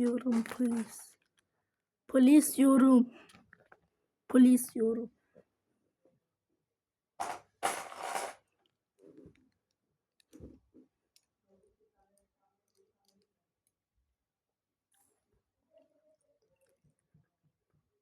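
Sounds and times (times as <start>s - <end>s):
plastic pieces rustling: 0.0s - 1.2s, 7.2s - 8.4s
plastic pieces clicking: 0.0s - 1.4s, 7.2s - 8.4s.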